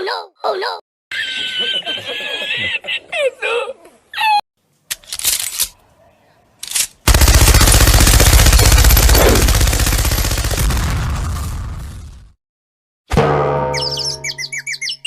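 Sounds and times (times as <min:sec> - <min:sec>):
machine-gun rattle: 0:04.9 - 0:05.7, 0:06.6 - 0:10.6.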